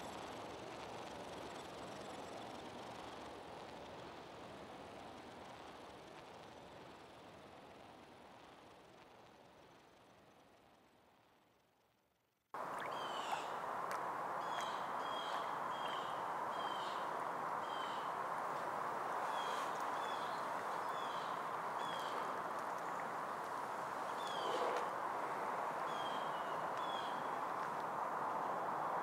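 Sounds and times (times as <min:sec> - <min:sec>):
rushing background noise: 0:12.6 - 0:29.0
small bird chirping: 0:12.8 - 0:13.6, 0:14.4 - 0:18.1, 0:19.2 - 0:23.2, 0:24.1 - 0:24.9.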